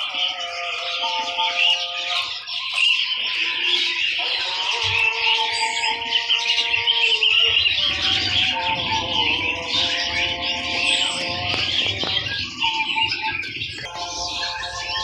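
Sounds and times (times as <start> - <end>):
songbirds chirping and twittering: 0.0 - 15.0
background music steady notes: 3.6 - 15.0.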